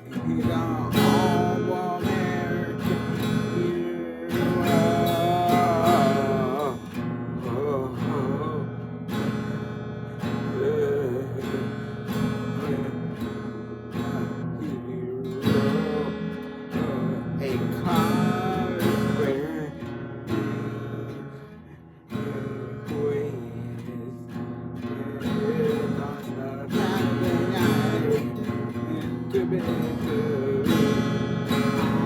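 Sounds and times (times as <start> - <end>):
strummed acoustic guitar: 0.0 - 32.0.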